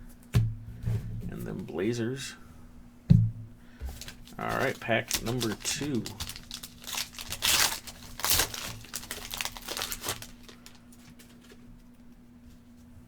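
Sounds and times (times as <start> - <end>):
foil wrapper tearing and crinkling: 4.0 - 11.6.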